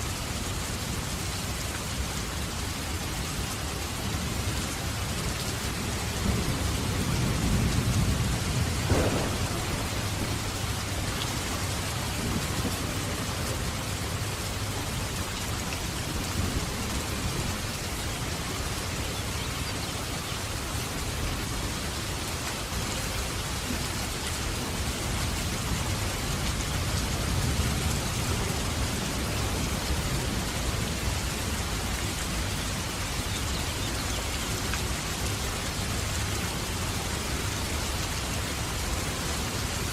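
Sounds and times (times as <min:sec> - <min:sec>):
heavy rain: 0:00.0 - 0:39.9
thunder rumbling: 0:06.1 - 0:14.1
sharp thunder crack: 0:08.6 - 0:11.0.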